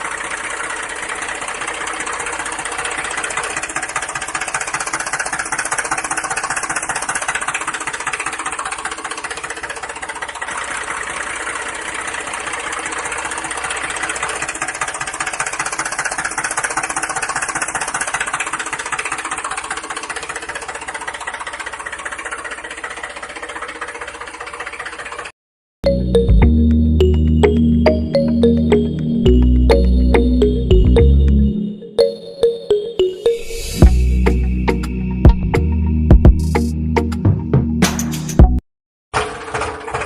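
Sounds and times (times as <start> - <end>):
small motor rattling: 0.0 - 25.3.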